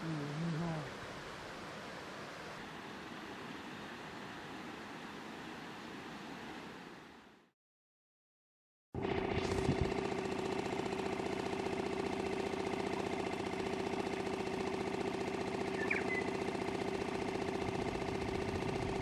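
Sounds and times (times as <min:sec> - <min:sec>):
boat engine running: 0:09.0 - 0:19.0.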